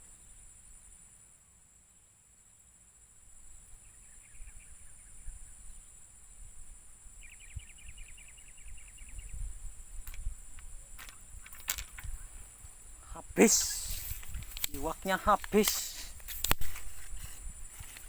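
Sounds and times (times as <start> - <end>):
insects droning: 0.0 - 18.0
sharp click: 13.6 - 16.8.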